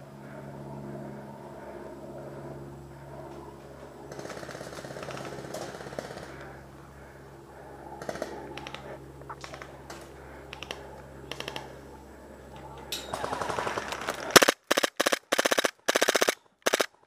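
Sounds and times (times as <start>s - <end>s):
airsoft guns firing bursts: 4.1s - 6.6s, 8.0s - 11.7s, 13.1s - 17.0s.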